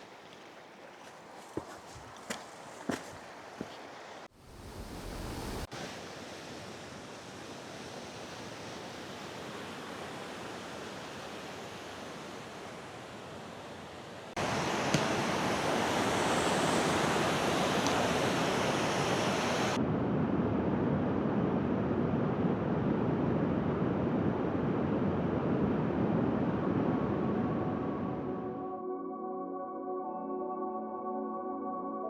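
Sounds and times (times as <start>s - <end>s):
waterfall rushing: 5.1s - 19.8s.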